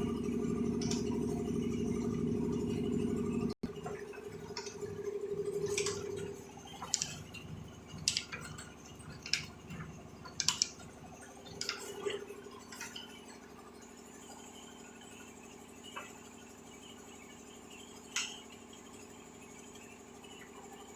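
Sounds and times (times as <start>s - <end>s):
low hum: 0.0s - 13.4s
sharp clicks: 5.6s - 7.2s, 10.2s - 10.8s.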